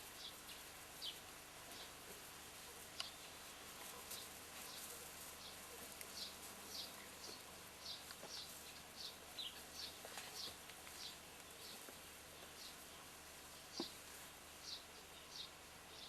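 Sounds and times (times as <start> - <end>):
steady background hiss: 0.0 - 16.0
bird chirping: 2.7 - 14.0, 14.6 - 16.0.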